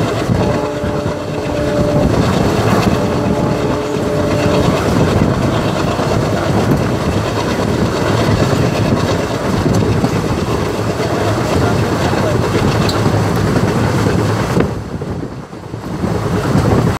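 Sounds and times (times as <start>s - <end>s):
train wheels rumbling on rails: 0.0s - 16.9s.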